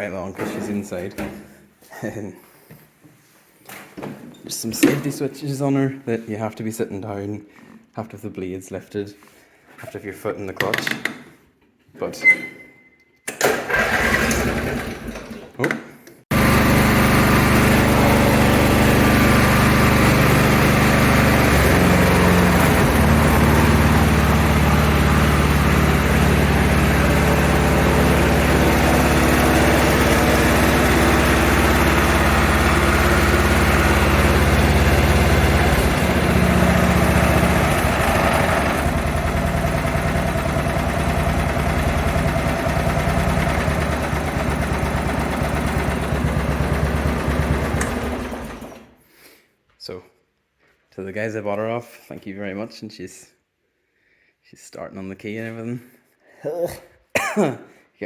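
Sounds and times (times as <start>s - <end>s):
lawn tractor engine running: 13.4s - 15.4s, 16.3s - 48.9s.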